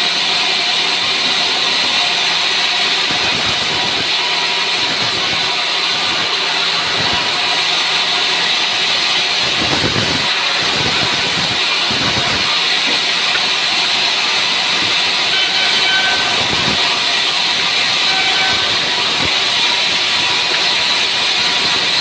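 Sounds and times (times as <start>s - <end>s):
saw cutting through wood: 0.0s - 22.0s.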